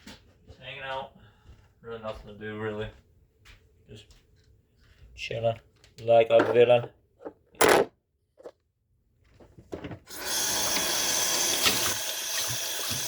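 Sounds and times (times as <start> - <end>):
water running from tap: 10.1 - 13.0.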